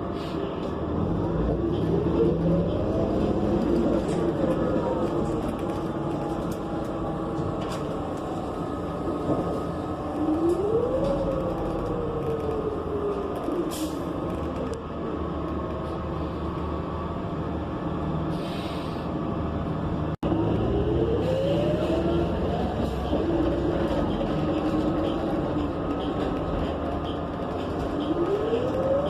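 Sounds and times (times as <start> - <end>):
bus engine and transmission whine: 0.0 - 29.0.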